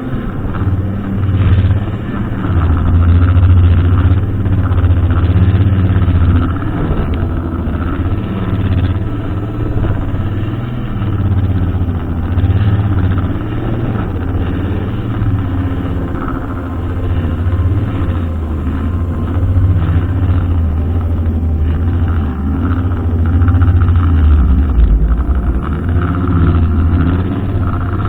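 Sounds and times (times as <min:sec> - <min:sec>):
brushcutter engine running: 0:00.0 - 0:28.0.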